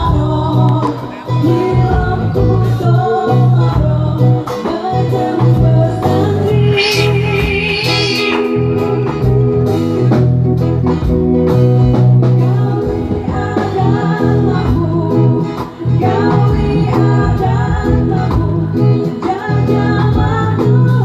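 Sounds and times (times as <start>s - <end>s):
person singing: 4.6s - 10.1s
plucked guitar: 5.4s - 13.2s
bass line: 6.1s - 12.3s.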